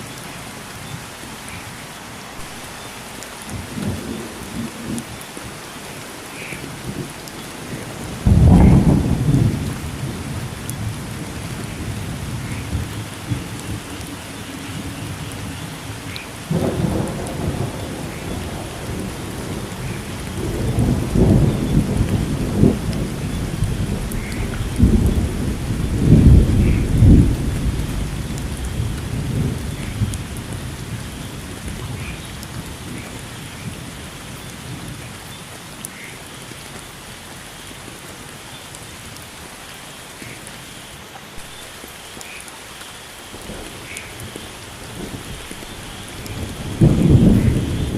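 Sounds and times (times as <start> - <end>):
steady rain falling: 0.0 - 47.9
thunder: 7.7 - 14.0, 16.5 - 33.9, 43.4 - 47.9.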